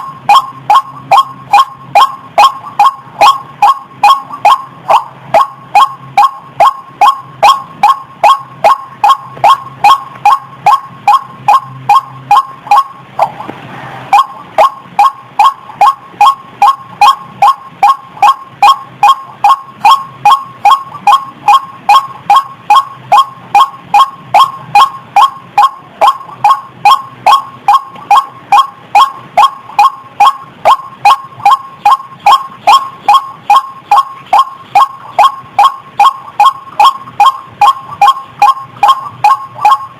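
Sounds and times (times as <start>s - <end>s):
waterhen calling: 0.7s - 39.8s.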